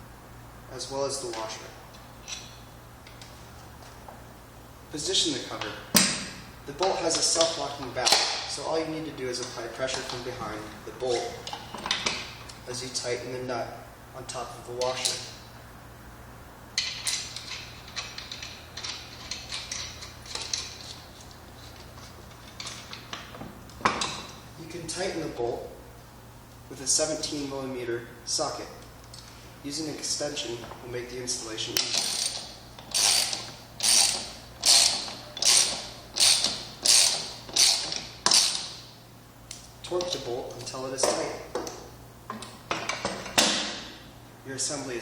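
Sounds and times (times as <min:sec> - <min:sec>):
ratchet wrench clicking: 0:31.8 - 0:38.8.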